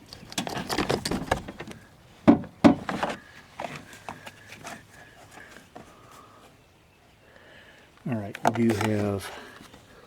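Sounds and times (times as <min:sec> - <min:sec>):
sharp knocks: 0:02.3 - 0:03.0.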